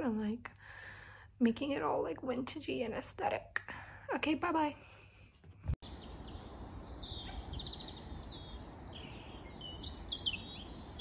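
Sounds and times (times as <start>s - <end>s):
songbirds chirping and singing: 5.8s - 11.0s.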